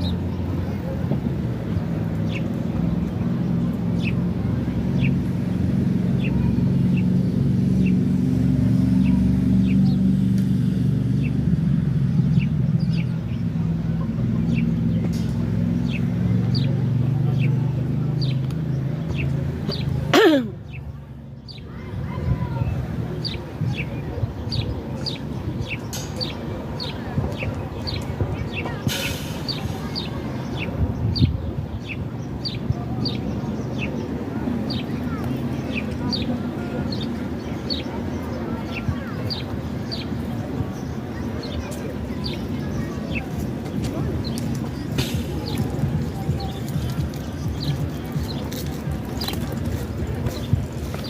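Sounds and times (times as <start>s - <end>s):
low engine hum: 0.0s - 51.0s
small birds chirping: 0.0s - 51.0s.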